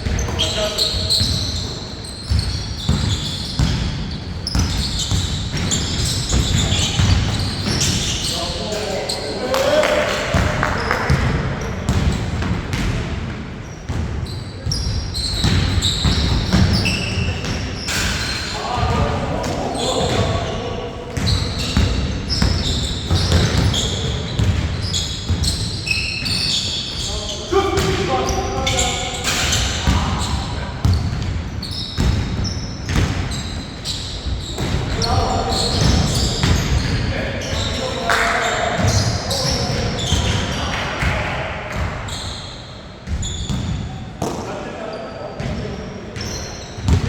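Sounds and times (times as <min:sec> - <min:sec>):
basketball bouncing on a court: 0:00.0 - 0:08.1, 0:10.3 - 0:17.6, 0:18.8 - 0:27.0, 0:27.8 - 0:37.7, 0:43.0 - 0:44.4, 0:46.2 - 0:47.0
players' voices: 0:00.0 - 0:13.2, 0:14.0 - 0:31.8, 0:32.4 - 0:42.6, 0:43.6 - 0:47.0
sneakers squeaking on floor: 0:00.0 - 0:47.0.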